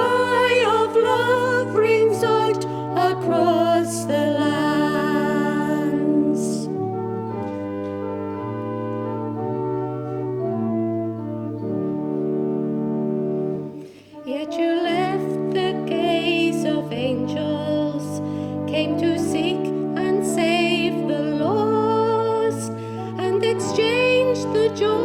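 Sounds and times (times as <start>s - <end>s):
people singing a hymn: 0.0s - 7.0s
organ chord: 0.0s - 14.0s.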